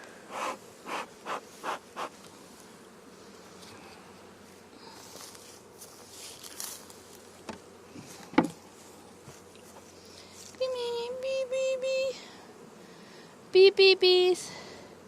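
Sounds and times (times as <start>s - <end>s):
bee smoker bellows puffs: 0.0s - 11.1s
honeybees buzzing: 0.0s - 15.0s.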